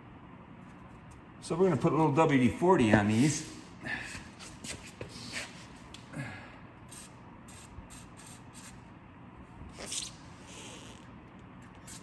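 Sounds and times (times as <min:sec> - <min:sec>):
aerosol can spraying: 0:06.9 - 0:08.8.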